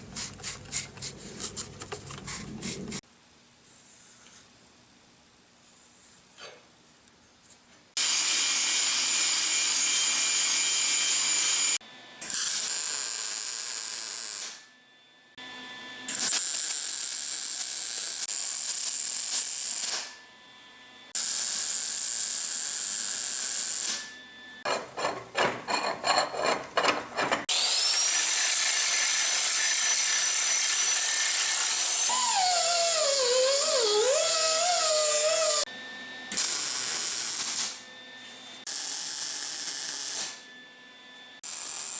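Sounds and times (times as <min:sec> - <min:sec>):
handheld power tool grinding metal: 0:24.7 - 0:35.7.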